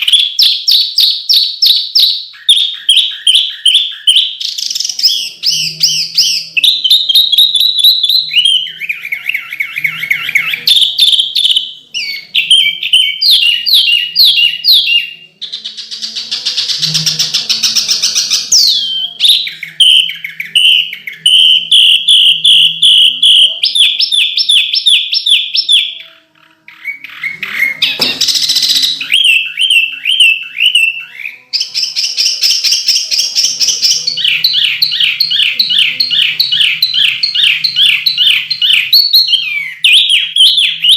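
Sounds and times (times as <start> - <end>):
songbird singing rapid whistles: 0.0 - 40.9.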